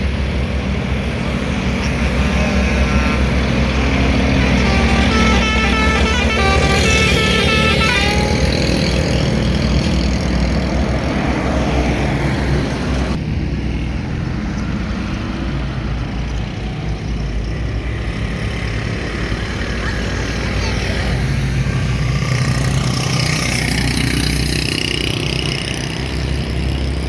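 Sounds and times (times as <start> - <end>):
vehicles passing: 0.0 - 27.0
stepped multi-note tone: 1.8 - 9.8.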